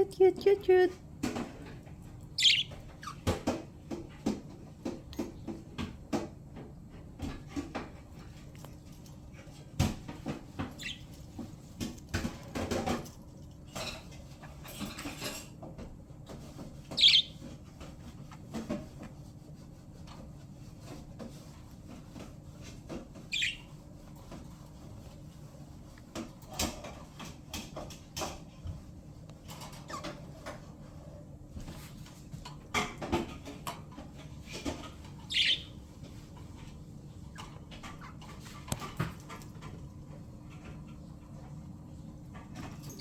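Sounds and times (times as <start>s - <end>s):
budgerigars chirping: 2.3s - 3.2s, 16.9s - 17.4s, 23.3s - 23.7s, 35.2s - 35.8s.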